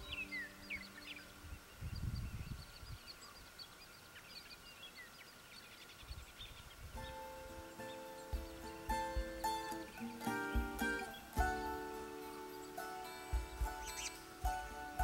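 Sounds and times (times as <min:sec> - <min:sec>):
held musical chord: 0:00.0 - 0:01.6, 0:07.1 - 0:15.0
plucked guitar music: 0:00.0 - 0:01.6, 0:07.0 - 0:15.0
wild birds chirping: 0:00.0 - 0:15.0.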